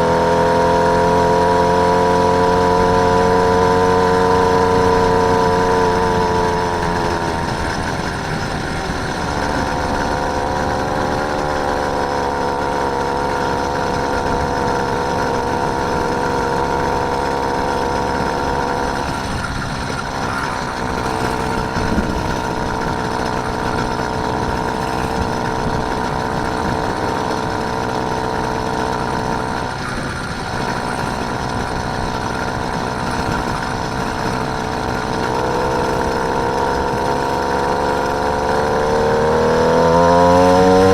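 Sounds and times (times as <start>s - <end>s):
small engine running: 0.0s - 40.9s.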